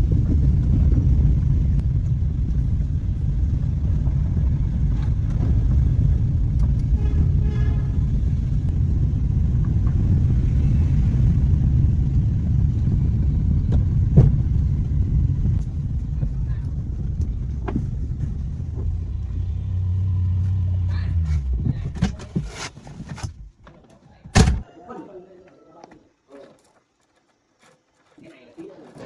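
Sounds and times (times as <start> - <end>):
car engine running: 0.0 - 22.4.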